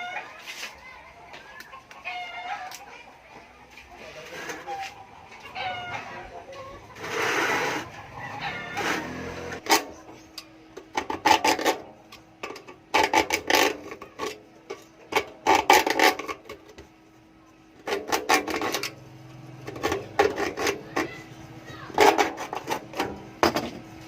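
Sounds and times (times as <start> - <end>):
scraping and clattering: 17.8 - 23.9.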